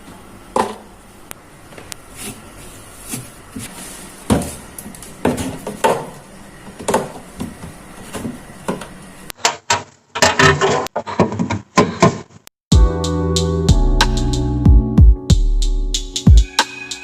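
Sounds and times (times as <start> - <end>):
kitchen knocks and clatters: 5.2 - 12.4.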